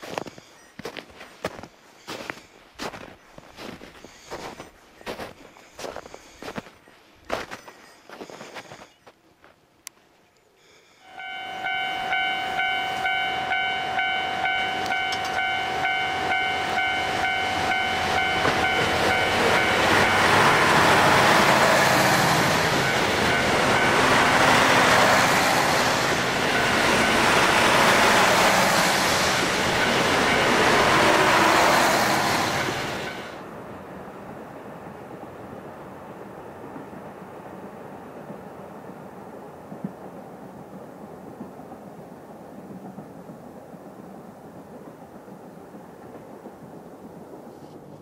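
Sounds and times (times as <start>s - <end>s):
long steady high tone: 10.5s - 33.4s
train cars rushing past: 11.0s - 39.2s
train wheels clacking: 14.5s - 33.4s.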